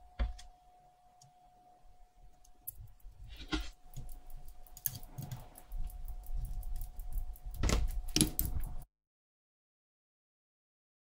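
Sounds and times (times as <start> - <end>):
faint steady tone: 0.0 - 8.8
small tools clicking and rustling: 2.3 - 8.8.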